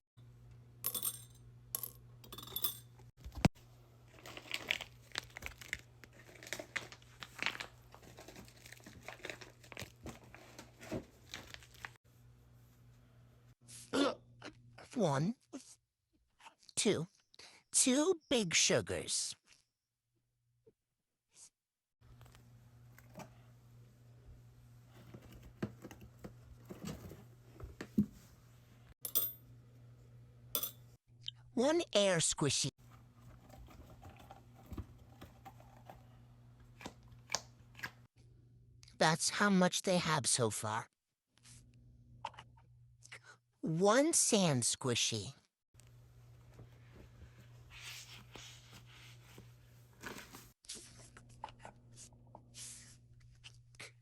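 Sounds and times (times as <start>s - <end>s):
packaging crinkling and rustling: 4.1s - 12.0s.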